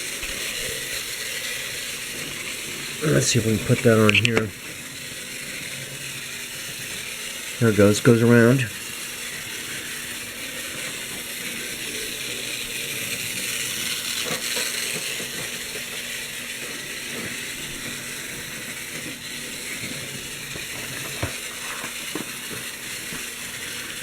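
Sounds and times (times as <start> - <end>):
model train whirring on rails: 0.0 - 24.0
sharp clicks: 4.0 - 4.5.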